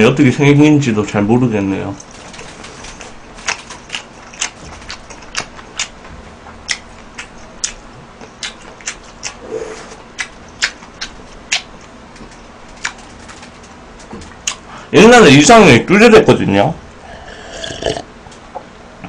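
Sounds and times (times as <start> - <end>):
chewing with wet mouth clicks: 3.4 - 6.0, 6.6 - 9.4, 10.1 - 13.0.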